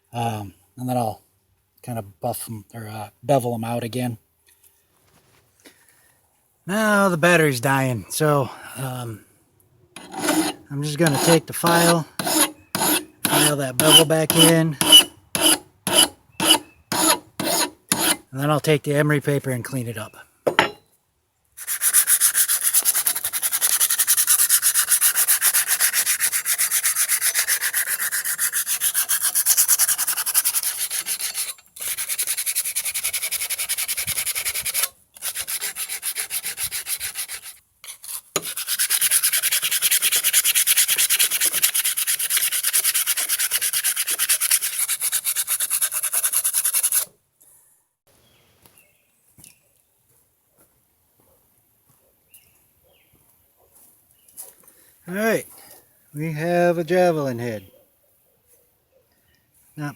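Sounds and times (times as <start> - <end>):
sandpaper rasping on metal: 10.0 - 18.2, 21.6 - 47.1.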